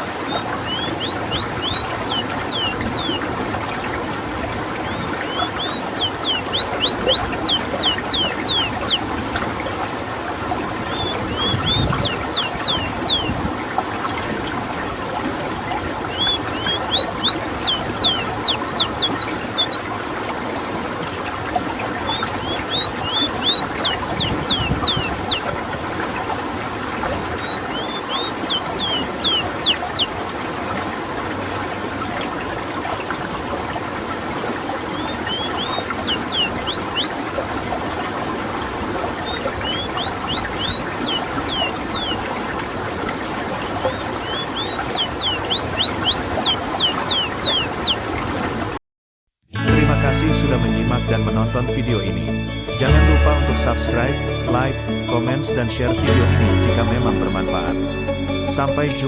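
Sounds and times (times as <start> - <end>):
bird singing rolling song: 0.0 - 4.0, 4.7 - 9.1, 10.8 - 13.4, 16.0 - 20.0, 21.9 - 25.6, 27.3 - 30.2, 34.9 - 37.4, 39.1 - 42.7, 43.3 - 48.1.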